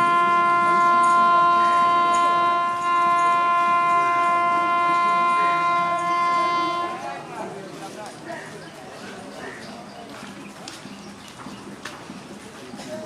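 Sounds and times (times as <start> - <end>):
locomotive horn long blast: 0.0 - 7.4.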